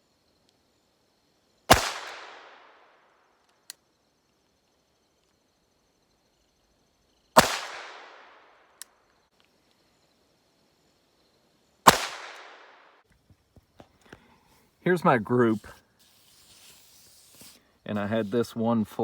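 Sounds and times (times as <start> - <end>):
revolver gunshots: 1.7 - 2.8, 7.4 - 8.5, 11.9 - 12.8.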